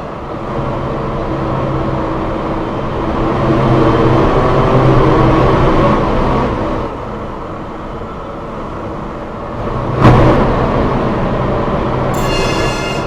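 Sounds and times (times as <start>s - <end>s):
high ringing tone: 12.1s - 13.0s.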